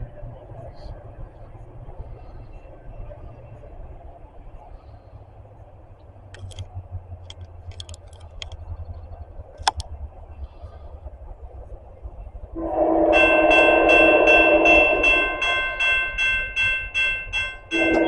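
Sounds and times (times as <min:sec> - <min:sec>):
train rumbling: 0:00.0 - 0:18.0
sharp clicks: 0:06.3 - 0:08.7, 0:09.5 - 0:09.9
locomotive air horn chord: 0:12.6 - 0:16.5, 0:17.5 - 0:18.0.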